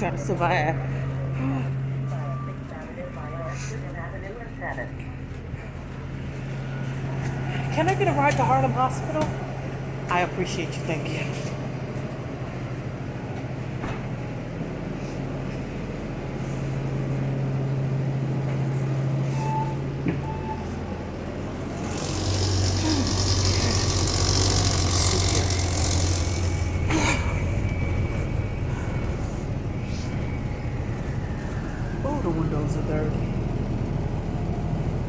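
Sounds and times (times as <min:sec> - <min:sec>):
bus engine humming: 0:00.0 - 0:35.0
short beeps: 0:19.4 - 0:20.8.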